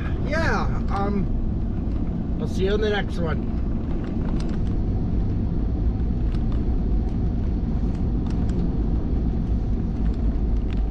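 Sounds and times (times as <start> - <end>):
truck engine and road noise: 0.0 - 10.9.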